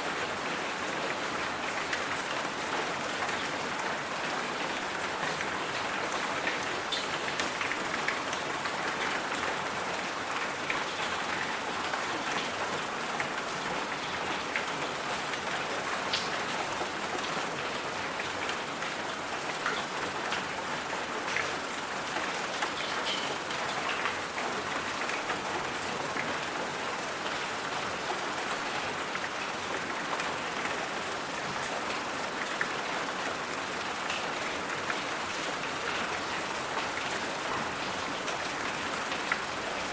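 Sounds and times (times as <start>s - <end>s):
steady rain hiss: 0.0s - 39.9s
faint raindrop ticks: 5.2s - 9.3s, 16.1s - 17.3s, 21.2s - 26.3s.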